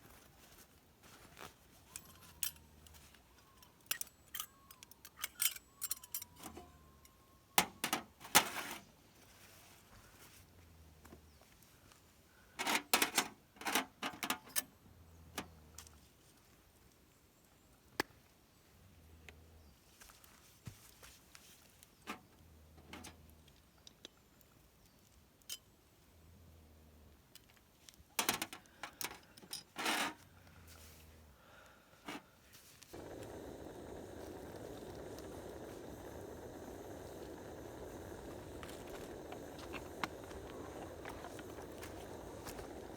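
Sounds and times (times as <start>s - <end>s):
small hard objects clinking: 32.9s - 42.9s.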